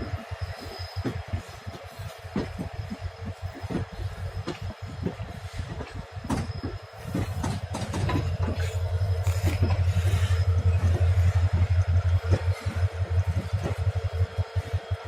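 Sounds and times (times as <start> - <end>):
train rumbling on rails: 0.0 - 15.0
wheels clicking over track: 5.8 - 14.8.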